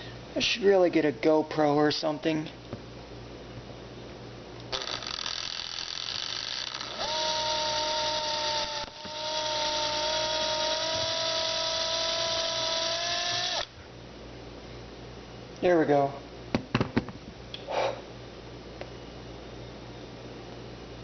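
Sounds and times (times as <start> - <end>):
power drill whining: 4.7 - 13.7.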